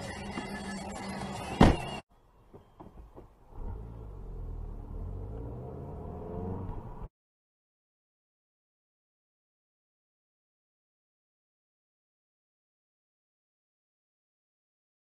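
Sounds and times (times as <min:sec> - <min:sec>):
background music: 0:00.0 - 0:02.0.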